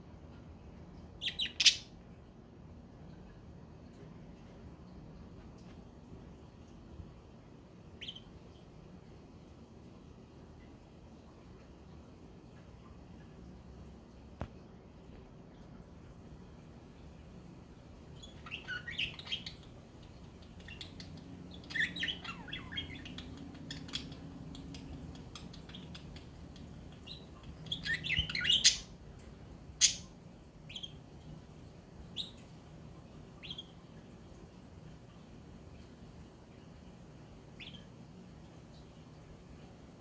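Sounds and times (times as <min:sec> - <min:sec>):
budgerigars chirping: 0:01.2 - 0:01.9, 0:08.0 - 0:08.3, 0:18.2 - 0:29.0, 0:29.8 - 0:30.1.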